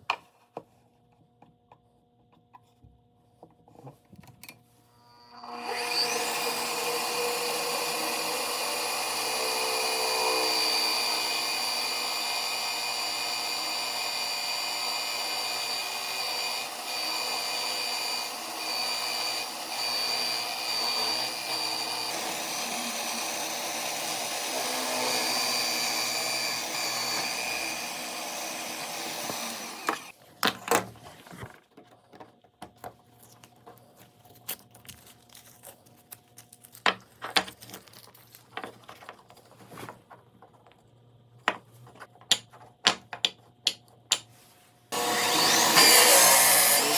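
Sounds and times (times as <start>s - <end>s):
power tool motor whining: 5.0s - 30.2s, 44.9s - 46.9s.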